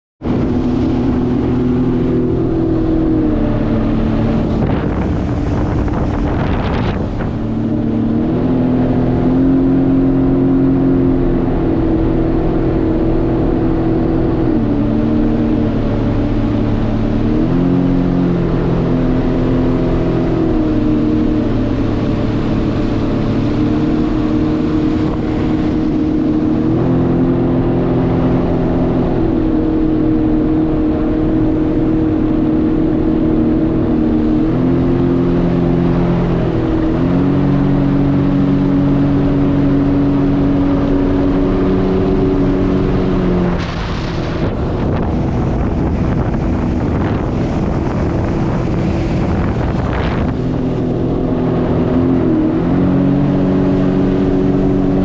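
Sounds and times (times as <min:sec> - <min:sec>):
jet ski engine revving: 0:00.2 - 0:55.0
rushing noise: 0:40.1 - 0:55.0.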